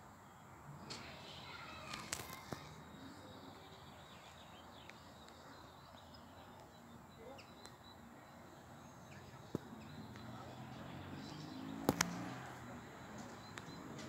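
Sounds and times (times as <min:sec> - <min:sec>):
small birds chirping: 0:00.0 - 0:14.0
sharp clicks: 0:11.8 - 0:12.3.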